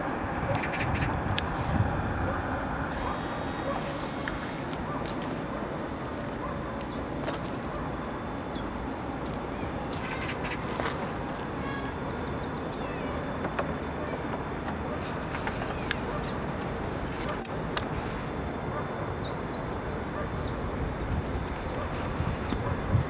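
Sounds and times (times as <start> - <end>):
steady background rush: 0.0 - 23.0
small birds chirping: 2.9 - 5.6, 6.2 - 18.2, 19.2 - 22.7.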